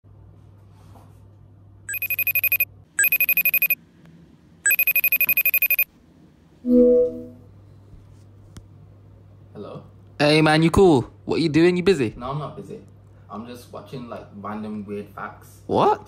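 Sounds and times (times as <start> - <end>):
phone ringtone electronic trill: 1.9 - 3.8, 4.7 - 5.8.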